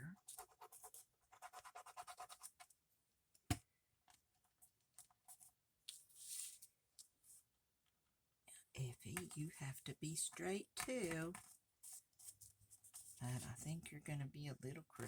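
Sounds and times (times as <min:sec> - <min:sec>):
paper rustle: 0:05.4 - 0:07.4.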